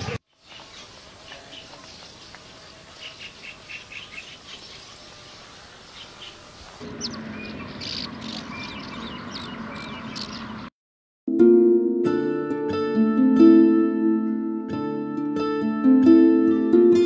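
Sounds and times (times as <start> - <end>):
small birds chirping: 0.3 - 10.7.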